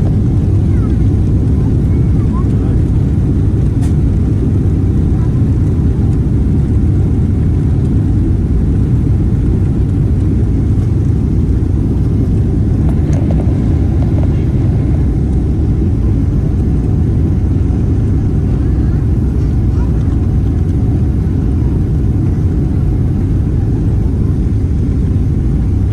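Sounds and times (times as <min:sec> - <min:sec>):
airliner cabin engine rumble: 0:00.0 - 0:25.9.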